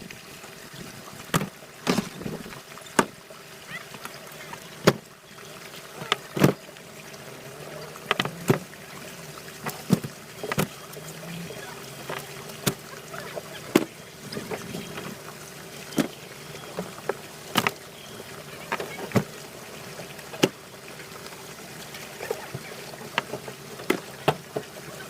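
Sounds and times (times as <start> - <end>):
boat engine humming: 0.0 - 25.0
sharp knocks and taps on boat: 2.9 - 3.2, 4.8 - 5.1, 15.9 - 17.8, 23.1 - 24.7.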